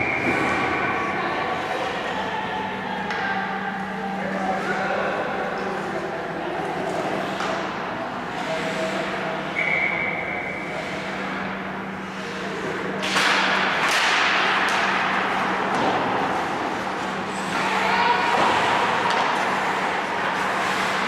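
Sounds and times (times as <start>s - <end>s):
constant low hum: 0.0s - 21.0s
hockey sticks and puck clacking: 3.1s - 3.4s, 6.9s - 8.6s, 11.3s - 21.0s
referee's whistle: 9.6s - 10.2s
skate blades scraping ice: 18.5s - 21.0s.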